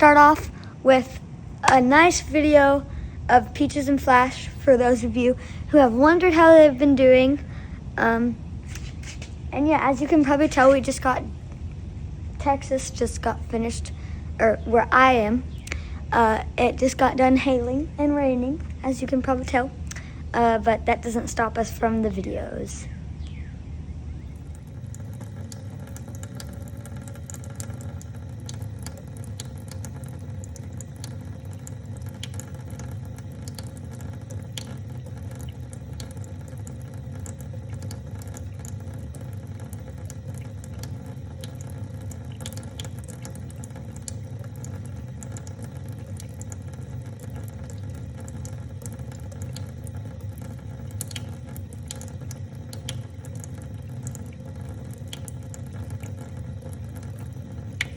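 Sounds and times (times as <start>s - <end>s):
low mechanical hum: 0.0s - 57.9s
small irregular ticks: 24.3s - 57.9s.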